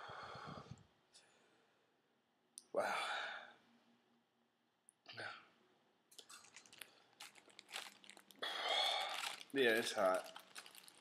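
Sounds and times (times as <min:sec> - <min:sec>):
person chewing crunchy food: 0:06.2 - 0:09.6, 0:10.2 - 0:11.0.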